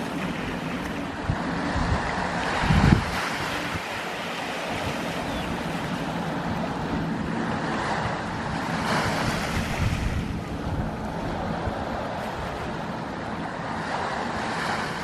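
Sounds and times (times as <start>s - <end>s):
ocean waves washing on shore: 0.0s - 15.0s.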